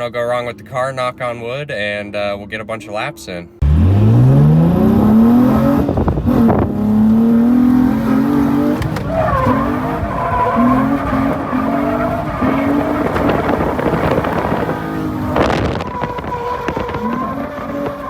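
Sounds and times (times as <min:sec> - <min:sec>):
car engine revving hard: 0:03.6 - 0:18.0
tyres squealing: 0:08.3 - 0:18.0.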